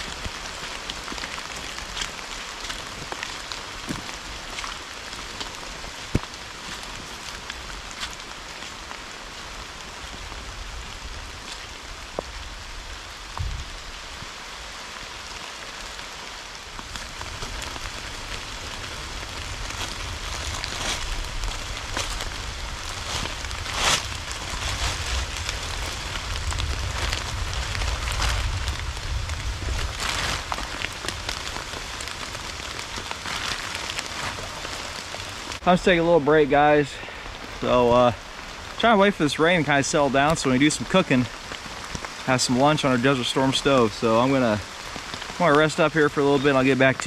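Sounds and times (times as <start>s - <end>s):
rain falling: 0.0s - 47.0s
low rumble: 16.9s - 32.6s.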